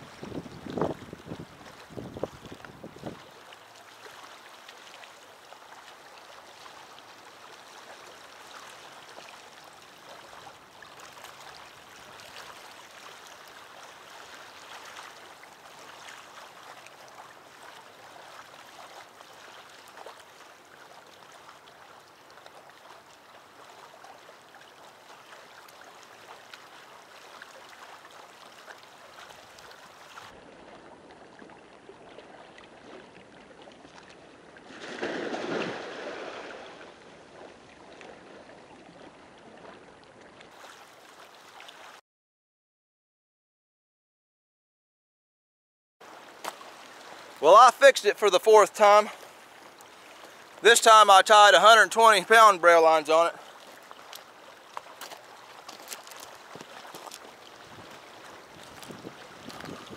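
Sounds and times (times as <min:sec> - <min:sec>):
small waves lapping shore: 0:00.0 - 0:42.0, 0:46.0 - 0:59.9.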